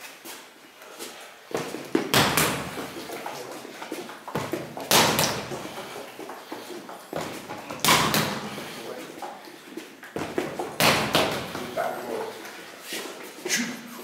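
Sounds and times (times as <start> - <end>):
heavy hits on rubber dummy: 1.5 - 3.2, 4.4 - 6.0, 7.2 - 8.8, 10.2 - 11.9.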